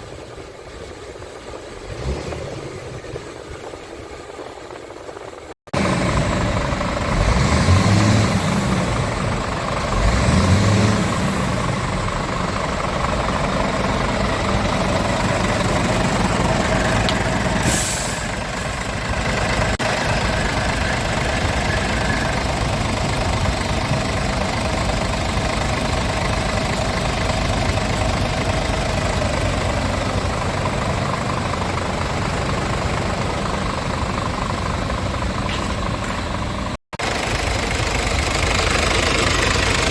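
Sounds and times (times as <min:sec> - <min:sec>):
diesel engine revving and idling: 0:01.0 - 0:39.9
compressed air hiss: 0:17.6 - 0:18.4.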